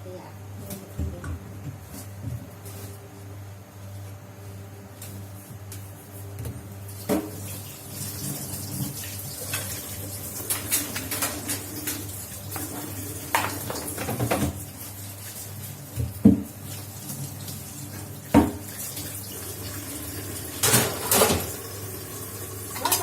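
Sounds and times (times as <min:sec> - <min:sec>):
water running from tap: 0:06.9 - 0:23.0.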